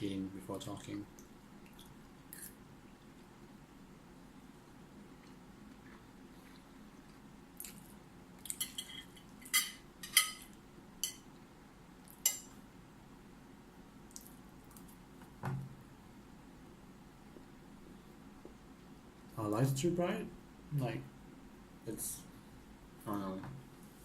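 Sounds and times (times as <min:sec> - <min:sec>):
cutlery clinking on plate: 0:08.6 - 0:11.2
soft thump: 0:15.4 - 0:15.7.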